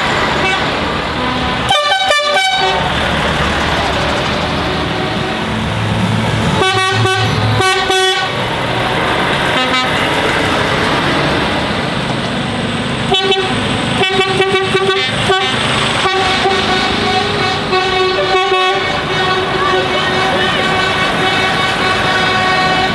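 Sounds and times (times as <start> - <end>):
passing lorries: 0.0 - 22.9
truck horn blasts: 0.3 - 3.3, 4.2 - 8.6, 9.4 - 10.2, 13.1 - 22.9.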